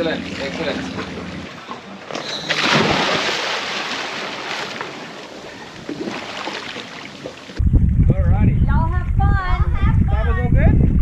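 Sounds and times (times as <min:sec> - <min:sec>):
waves splashing and rushing: 0:02.5 - 0:07.6
wind on microphone: 0:07.5 - 0:11.0.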